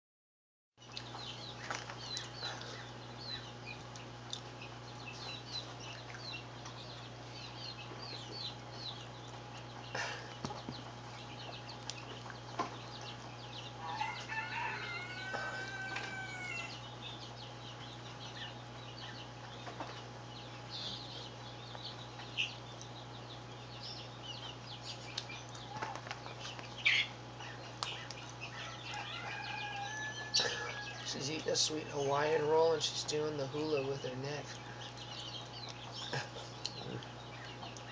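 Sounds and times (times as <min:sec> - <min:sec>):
low electrical hum: 0:00.8 - 0:37.9
arched rising-and-falling bird calls: 0:13.0 - 0:19.3, 0:23.2 - 0:33.2.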